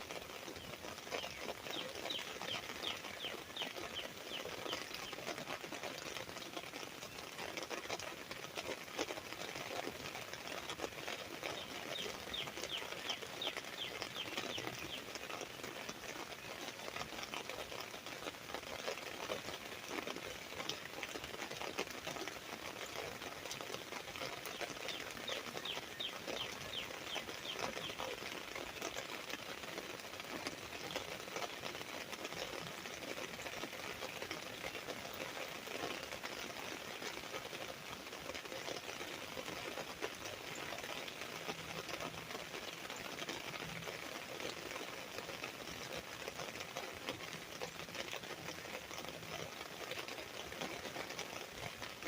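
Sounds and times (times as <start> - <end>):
rain pattering on an umbrella: 0.0 - 52.0
bird singing: 1.2 - 4.8, 11.6 - 15.0, 24.5 - 28.1.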